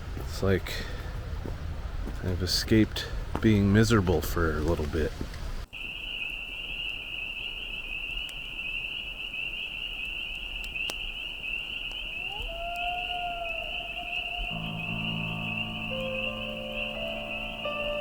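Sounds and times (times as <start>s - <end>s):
insects trilling: 5.7s - 18.0s.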